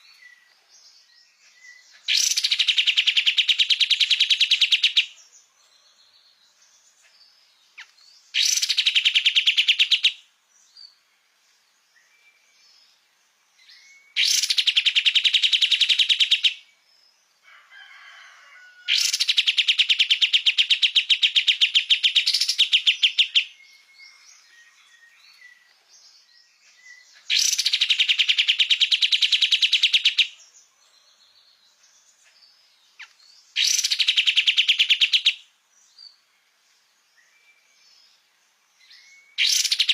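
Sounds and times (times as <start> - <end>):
faint bird chirps: 0.0 - 39.9
bird singing high trills: 1.3 - 5.1, 7.8 - 10.2, 13.7 - 16.6, 19.0 - 25.7, 26.5 - 30.4, 33.0 - 35.4, 38.8 - 39.9.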